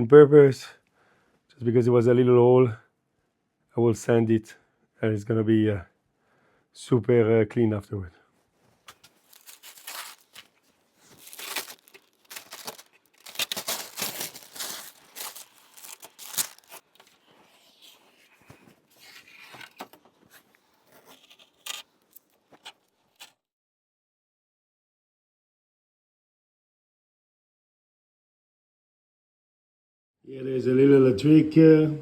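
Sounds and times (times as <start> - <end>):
tape crumpling: 8.8 - 23.4
masking tape peeling: 8.9 - 23.4.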